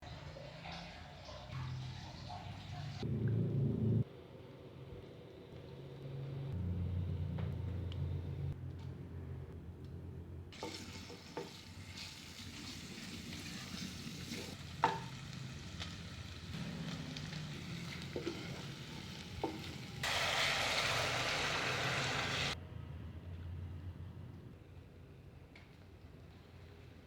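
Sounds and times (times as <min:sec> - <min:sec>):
food sizzling in oil: 0:10.6 - 0:22.6.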